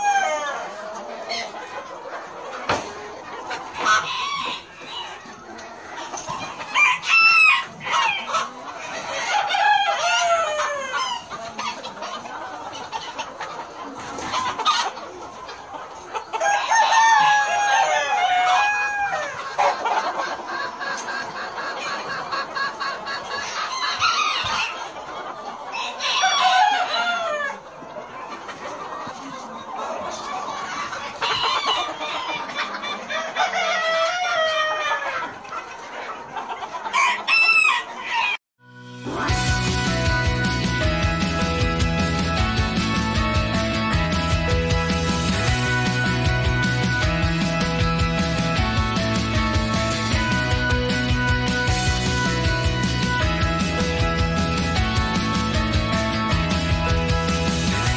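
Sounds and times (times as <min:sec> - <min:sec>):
roosters crowing: 0:00.0 - 0:01.5, 0:03.8 - 0:05.3, 0:06.3 - 0:11.7, 0:16.3 - 0:20.0, 0:23.6 - 0:24.8, 0:25.7 - 0:27.6, 0:31.2 - 0:35.2, 0:36.8 - 0:38.4
hens clucking: 0:00.0 - 0:38.4, 0:39.1 - 0:57.9.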